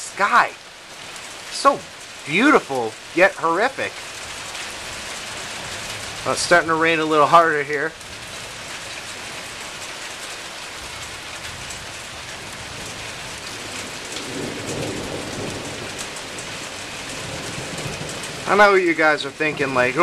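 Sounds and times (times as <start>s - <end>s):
heavy rain: 0.0s - 20.0s
distant thunder rumble: 12.5s - 20.0s.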